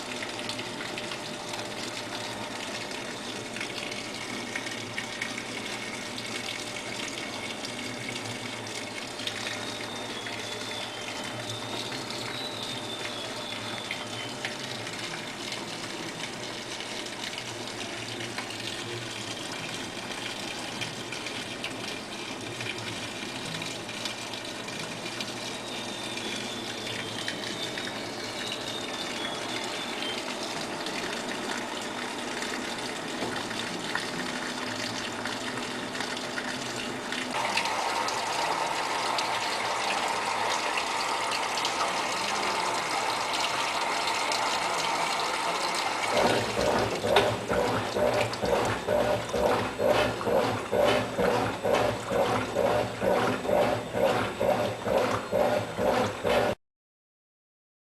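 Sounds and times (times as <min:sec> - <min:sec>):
washing machine filling with water: 0:00.0 - 0:56.6.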